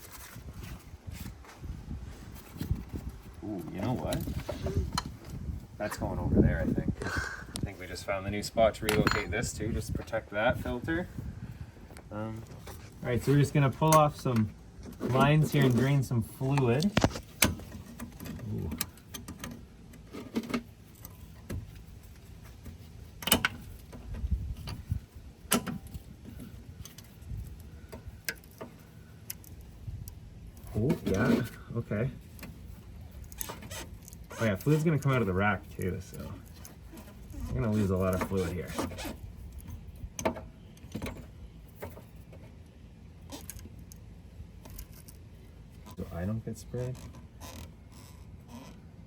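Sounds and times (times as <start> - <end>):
tools clicking and knocking: 8.8 - 9.4
light clicks and knocks of hand tools: 11.9 - 31.6, 32.2 - 42.6.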